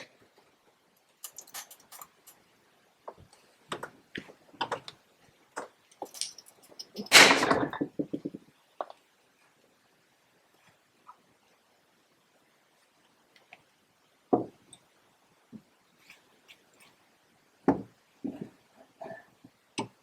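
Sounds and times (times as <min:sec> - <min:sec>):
tool parts clattering: 0:01.2 - 0:02.4, 0:06.0 - 0:08.3.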